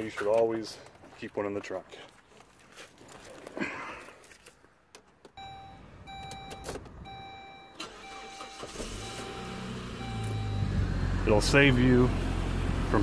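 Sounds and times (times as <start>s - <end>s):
car warning chime beeping: 5.4s - 10.9s
car engine cranking and running: 6.1s - 13.0s.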